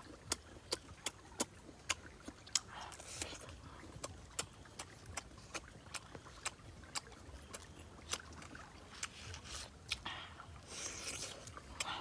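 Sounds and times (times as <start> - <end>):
crunchy chewing: 0.0 - 12.0.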